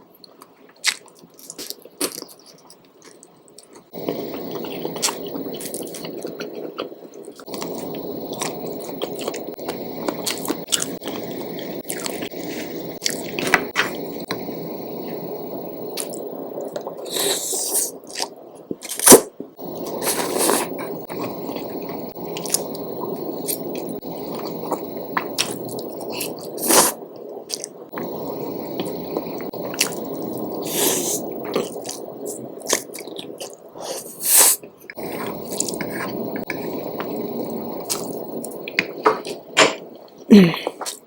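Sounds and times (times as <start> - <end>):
wet chewing and biting: 0.8 - 14.4
short hissy bursts: 33.8 - 34.6.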